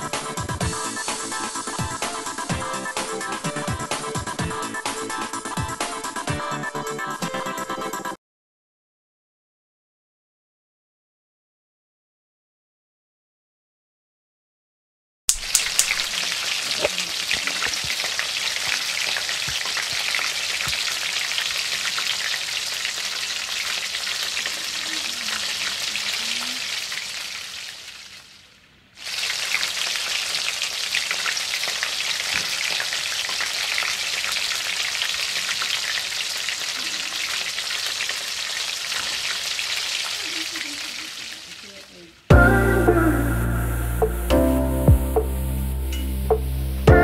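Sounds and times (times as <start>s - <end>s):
burgers sizzling in a pan: 0.0s - 6.2s, 15.3s - 44.3s.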